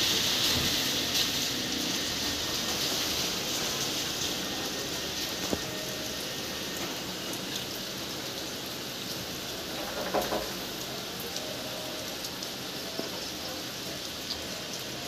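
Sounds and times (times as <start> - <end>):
steady rain falling: 0.0 - 15.0
drips or knocks: 9.8 - 10.6.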